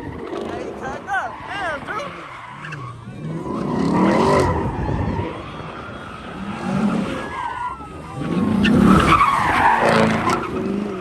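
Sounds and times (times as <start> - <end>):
tires squealing on pavement: 0.0 - 11.0
car engine revving hard: 1.6 - 7.3, 8.0 - 11.0.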